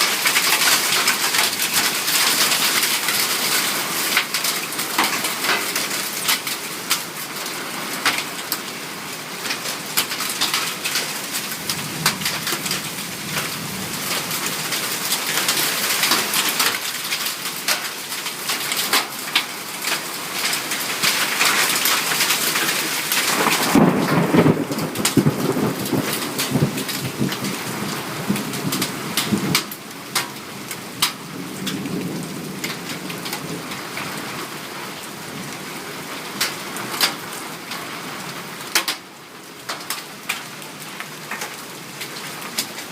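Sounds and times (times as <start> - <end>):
heavy rain: 0.0 - 42.9
thunder rumbling: 23.1 - 29.8.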